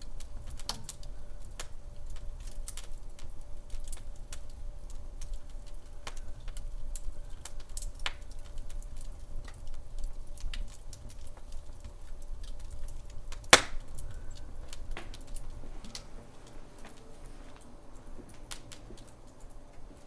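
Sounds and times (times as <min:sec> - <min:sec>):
low fire rumble: 0:00.0 - 0:20.0
wood fire crackling: 0:00.0 - 0:20.0
loud pop of fire: 0:13.3 - 0:15.3.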